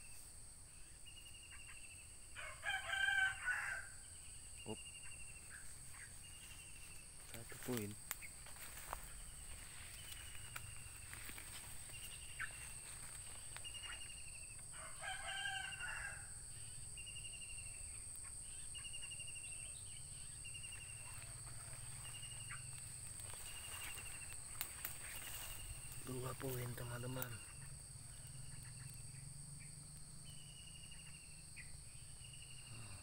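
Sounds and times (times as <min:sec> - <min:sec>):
high insect drone: 0:00.0 - 0:33.0
rooster crowing: 0:02.4 - 0:04.1, 0:14.7 - 0:16.5
high trilled bird calls: 0:07.6 - 0:14.6.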